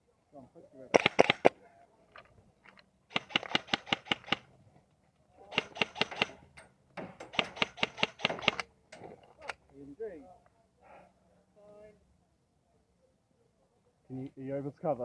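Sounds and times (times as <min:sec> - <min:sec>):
airsoft guns firing bursts: 0:00.9 - 0:01.5, 0:03.1 - 0:04.5, 0:05.5 - 0:06.5, 0:07.3 - 0:08.7.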